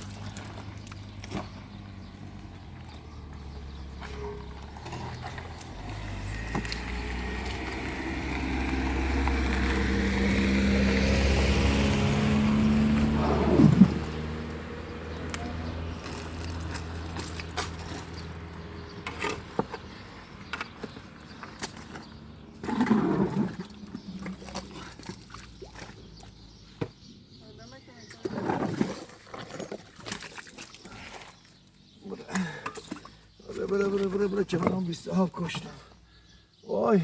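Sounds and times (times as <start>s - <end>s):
engine running: 0.0s - 19.7s.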